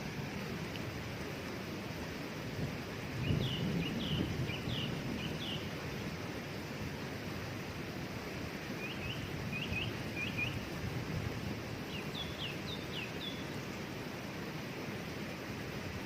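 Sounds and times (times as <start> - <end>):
small bird chirping: 11.9 - 13.8.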